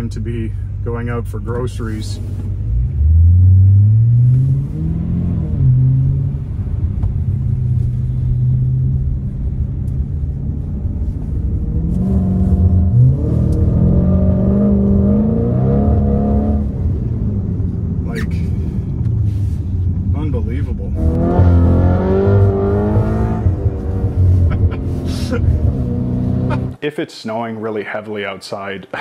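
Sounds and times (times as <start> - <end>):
car engine accelerating: 1.5 - 26.8.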